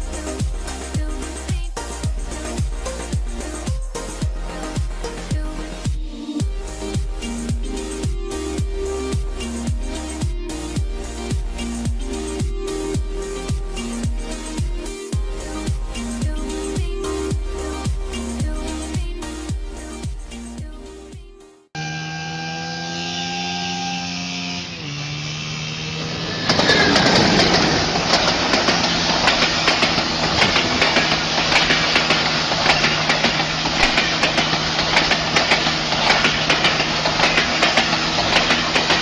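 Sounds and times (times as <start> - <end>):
train engine humming: 0.0 - 21.1, 21.8 - 39.0
rushing noise with clicks and rattles: 26.0 - 39.0.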